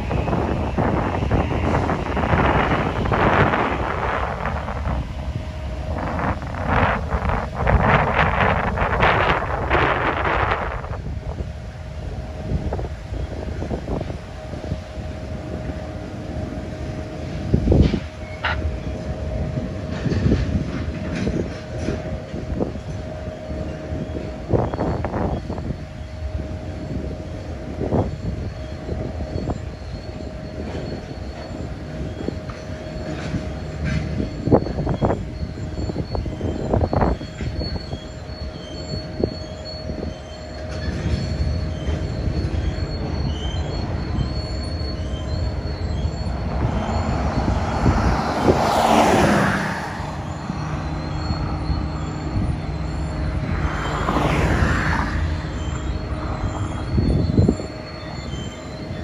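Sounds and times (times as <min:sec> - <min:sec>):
freight train wheels rumbling: 0:00.0 - 0:59.0
sharp knocks of train: 0:17.6 - 0:18.9, 0:19.8 - 0:23.0, 0:30.6 - 0:35.0
car passing on road: 0:45.4 - 0:58.2.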